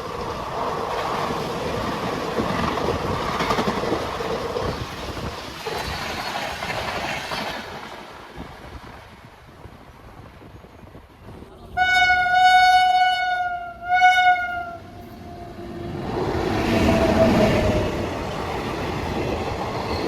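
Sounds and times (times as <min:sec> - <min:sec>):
train wheels clicking over joints: 0:00.1 - 0:08.0.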